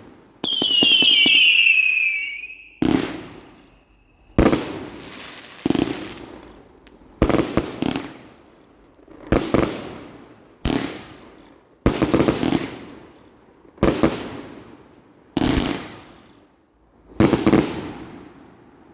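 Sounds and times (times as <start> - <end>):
firework bangs: 0.4 - 8.2.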